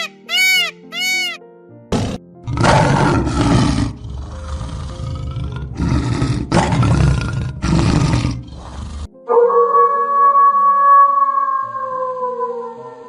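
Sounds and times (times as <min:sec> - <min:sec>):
large animal roaring: 0:01.9 - 0:09.1.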